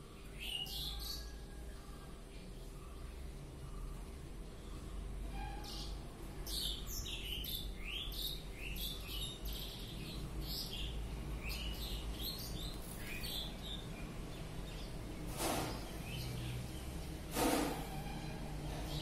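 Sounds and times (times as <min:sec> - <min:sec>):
bird chirping: 0:00.0 - 0:17.2.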